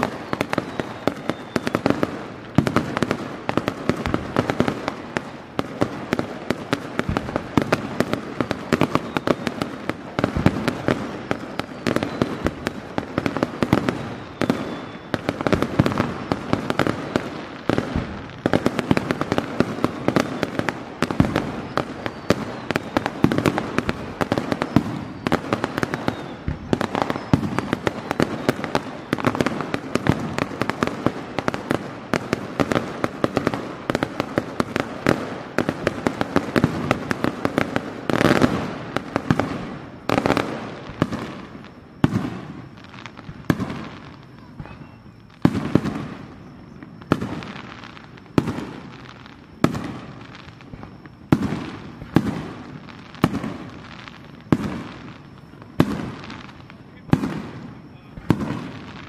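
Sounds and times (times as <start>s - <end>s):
firework crackling: 0.0s - 59.0s
firework shells bursting: 0.0s - 59.0s.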